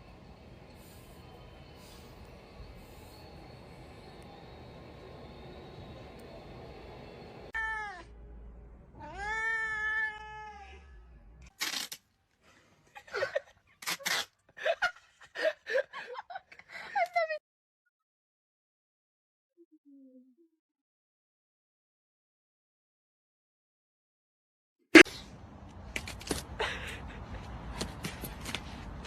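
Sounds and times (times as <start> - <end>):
cat meowing: 7.6 - 8.1, 9.0 - 11.0.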